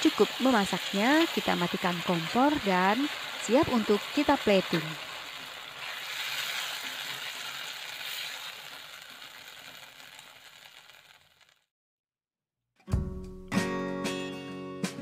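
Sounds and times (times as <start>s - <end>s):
spatula stirring in a wok: 0.0s - 11.2s
food sizzling in a wok: 0.0s - 11.6s.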